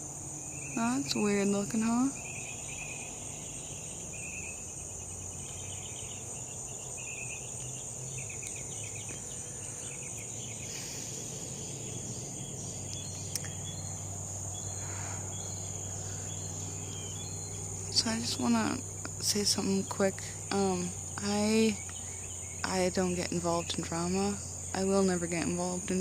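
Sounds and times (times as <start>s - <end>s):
cricket chorus drone: 0.0s - 26.0s
faint low hum: 0.0s - 26.0s.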